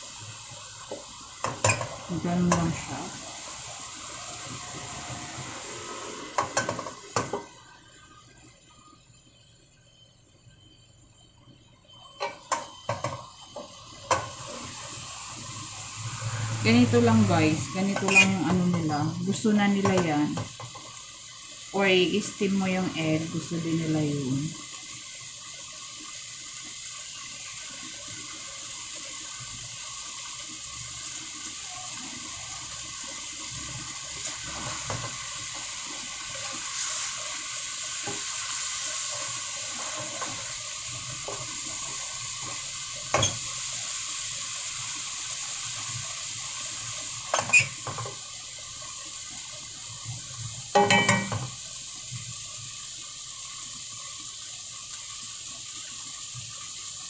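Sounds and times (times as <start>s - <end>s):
omelette sizzling in a pan: 0.0s - 57.0s
utensil knocking on pan: 50.7s - 51.5s.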